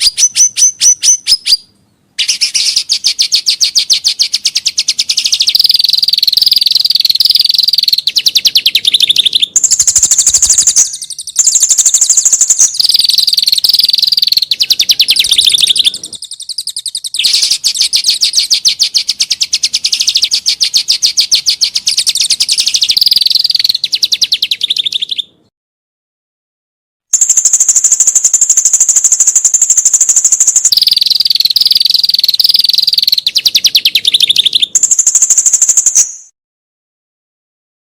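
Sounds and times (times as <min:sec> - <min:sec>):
songbird rough trills: 0:00.0 - 0:25.4.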